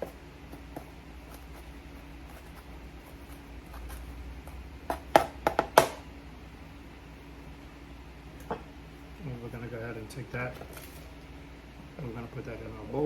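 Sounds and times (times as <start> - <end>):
knife scraping cutting board: 0.0 - 5.0.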